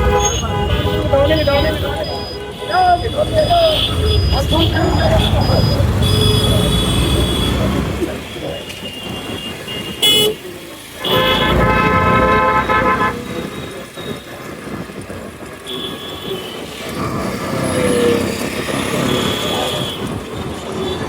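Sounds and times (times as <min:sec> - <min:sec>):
car horn honking: 0:00.0 - 0:14.1
road and wind noise: 0:00.0 - 0:21.0.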